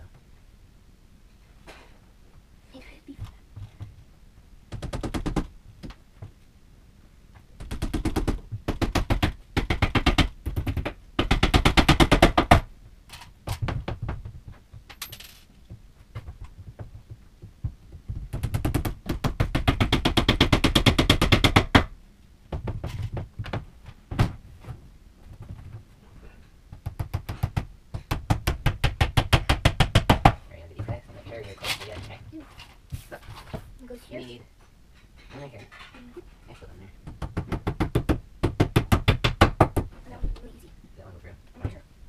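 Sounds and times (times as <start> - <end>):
rapid knocking on wooden boards: 4.7 - 6.0, 7.6 - 12.7, 13.4 - 14.9, 15.7 - 21.9, 22.5 - 24.4, 26.7 - 31.0, 37.0 - 39.9.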